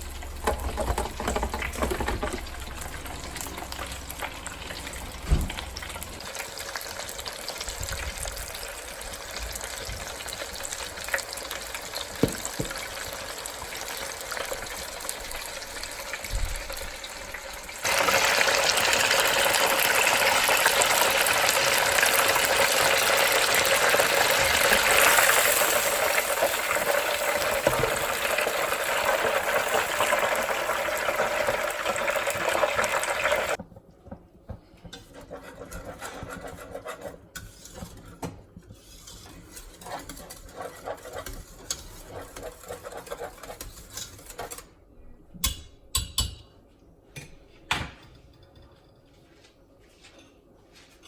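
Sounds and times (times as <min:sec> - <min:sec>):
utensil scraping in a pot: 0:00.3 - 0:05.2, 0:17.8 - 0:33.6, 0:34.8 - 0:44.8.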